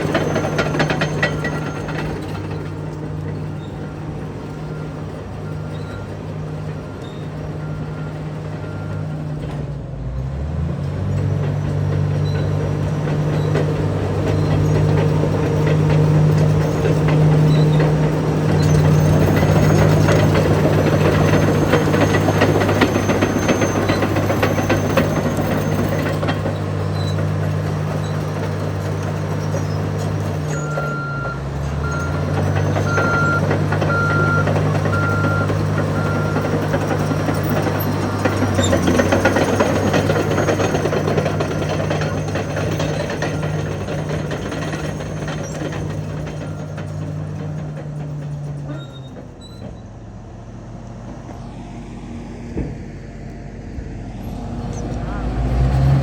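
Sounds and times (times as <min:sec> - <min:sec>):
steel tracks clattering: 0:00.0 - 0:51.6
diesel dozer engine under load: 0:00.0 - 0:56.0
backup alarm beeping: 0:30.5 - 0:37.4.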